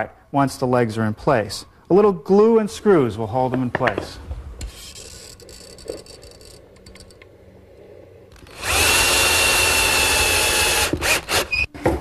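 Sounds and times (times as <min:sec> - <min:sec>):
power drill driving screw: 0:08.4 - 0:11.7.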